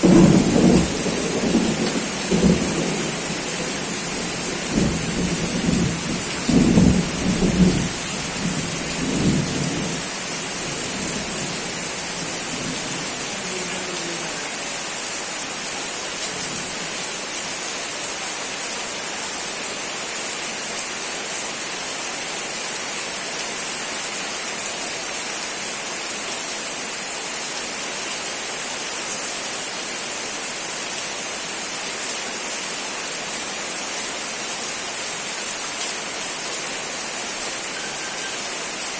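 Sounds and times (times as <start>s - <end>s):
thunder rumbling: 0.0s - 14.4s
steady rain hissing: 0.0s - 38.9s.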